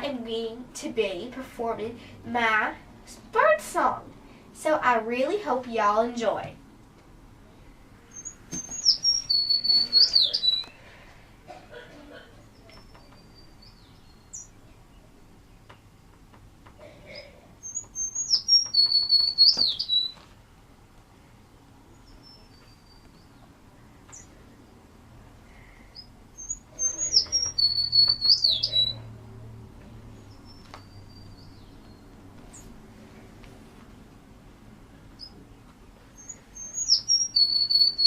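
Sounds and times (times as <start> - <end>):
sparrow singing: 8.1 - 10.8, 12.5 - 15.9, 17.6 - 20.2, 25.6 - 29.1, 30.1 - 32.7, 36.1 - 38.0.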